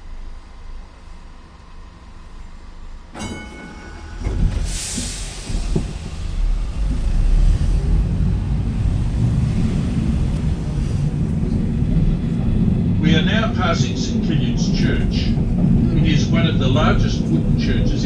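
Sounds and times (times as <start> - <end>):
tram rumbling: 0.0 - 18.0
metallic ring: 3.2 - 4.8.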